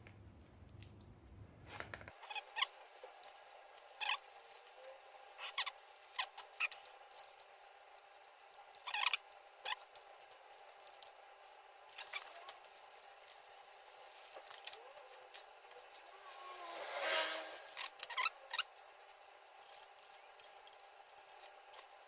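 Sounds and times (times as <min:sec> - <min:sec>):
faint steady hum: 0:00.0 - 0:22.0
short high squeaks: 0:16.2 - 0:18.7.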